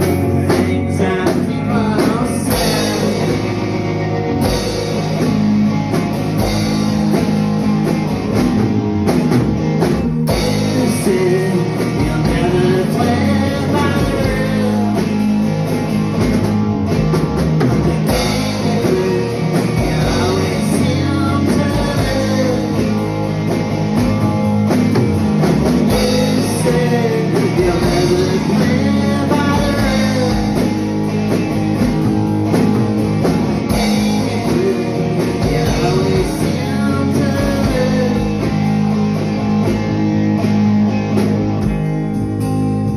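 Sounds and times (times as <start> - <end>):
person singing: 0.0 - 3.6, 10.5 - 15.3, 18.4 - 23.2, 25.9 - 30.8, 34.2 - 38.7
drum kit: 0.0 - 42.9
guitar: 0.0 - 42.9.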